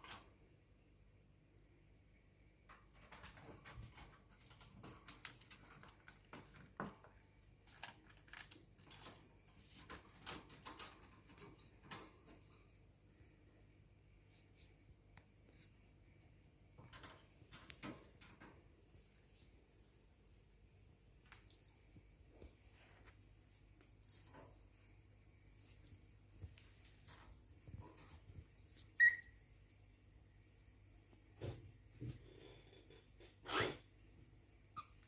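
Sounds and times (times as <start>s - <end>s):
birds clicking and scratching: 2.7s - 13.6s.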